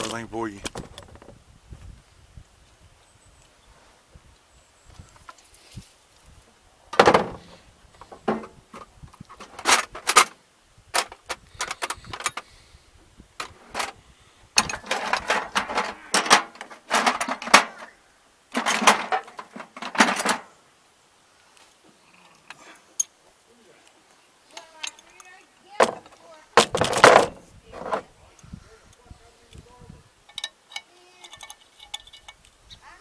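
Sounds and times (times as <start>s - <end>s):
metallic clanks of hand tools: 14.6s - 17.9s, 30.2s - 32.5s.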